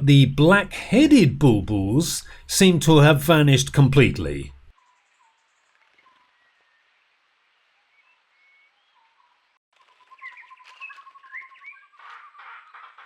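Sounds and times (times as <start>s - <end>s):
birds chirping and chattering: 10.0s - 13.0s
birds whistling: 10.0s - 13.0s.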